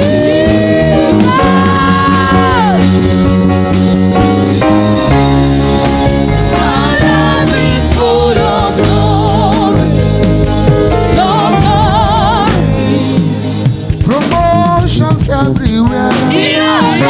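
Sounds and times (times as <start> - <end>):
person singing with vibrato: 0.0 - 3.3, 6.4 - 17.0
instrumental accompaniment: 0.0 - 17.0.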